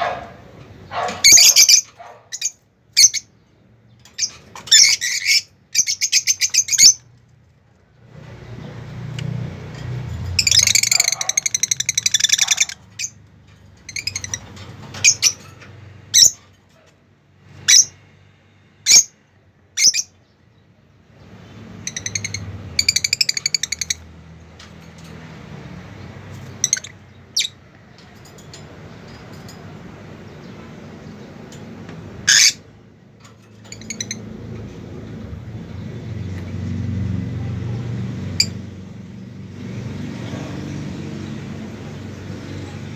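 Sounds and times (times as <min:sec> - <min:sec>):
birds trilling chatter: 0:00.0 - 0:07.2, 0:08.7 - 0:16.6, 0:21.2 - 0:42.9
sharp bird calls: 0:00.9 - 0:03.3, 0:10.4 - 0:13.2.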